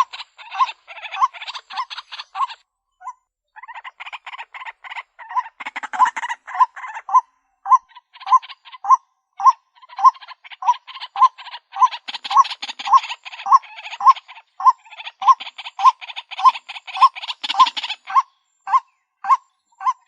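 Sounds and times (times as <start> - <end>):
waterhen calling: 0.0 - 2.6, 3.6 - 20.0.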